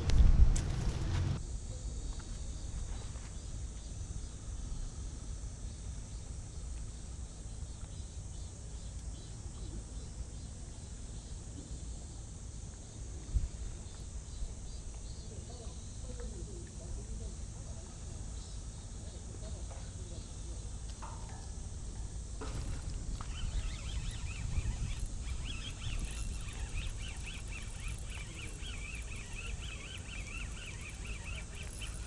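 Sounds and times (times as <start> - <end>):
low rumble: 0.0 - 1.4
faint high-pitched chirring: 20.0 - 32.0.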